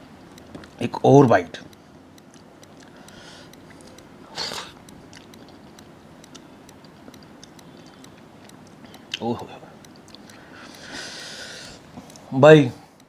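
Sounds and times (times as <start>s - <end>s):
person chewing food: 0.0s - 0.8s, 1.7s - 12.3s
mouth clicks: 2.2s - 12.2s.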